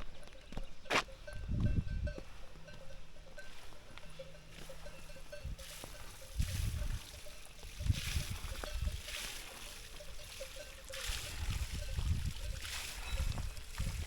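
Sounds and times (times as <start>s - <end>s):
footsteps crunching on gravel: 0.0s - 10.6s.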